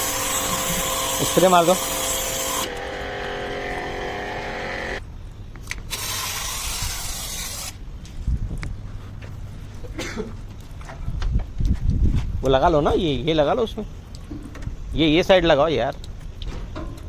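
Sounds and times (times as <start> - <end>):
water jet hissing: 0.0 - 3.6
pump motor humming: 0.0 - 5.0.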